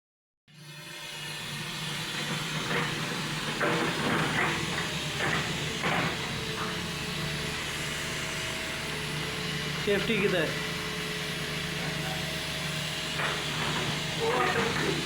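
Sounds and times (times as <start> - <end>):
faint indistinct voices: 14.1 - 15.0.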